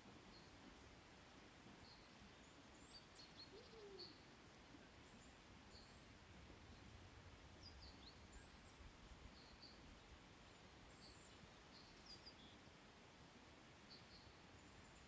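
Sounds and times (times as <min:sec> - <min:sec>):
small birds chirping: 0:01.7 - 0:12.9.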